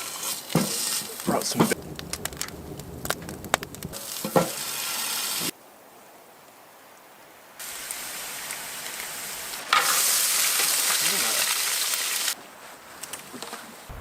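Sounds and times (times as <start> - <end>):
food sizzling in a pan: 0.0 - 1.8, 3.9 - 5.5, 7.6 - 12.4.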